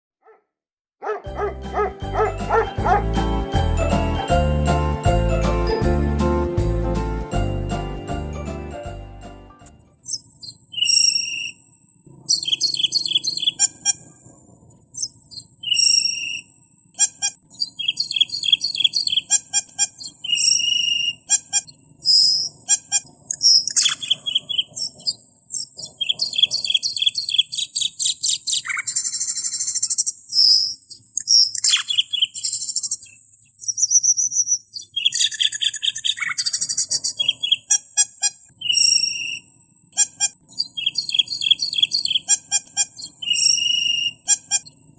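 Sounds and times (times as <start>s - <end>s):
bird chirping and trilling: 10.0s - 14.2s, 15.0s - 44.9s.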